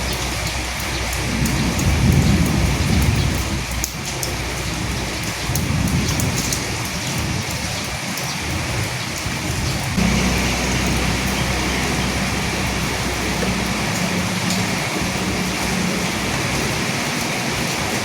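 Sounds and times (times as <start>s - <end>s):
distant thunder rumbling: 0.0s - 7.4s, 10.0s - 18.0s
rain pattering on dead leaves: 0.0s - 18.0s.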